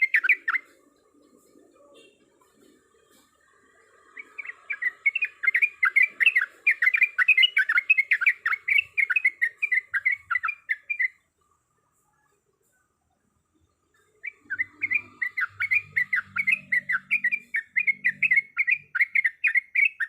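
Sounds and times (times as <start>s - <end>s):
bird singing rolling song: 0.0s - 12.4s, 13.3s - 20.0s.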